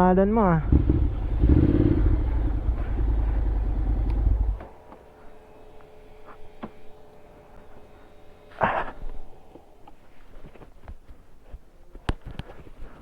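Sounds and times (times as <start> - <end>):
motorcycle engine rumbling: 0.0 - 13.0
faint hum: 0.5 - 13.0.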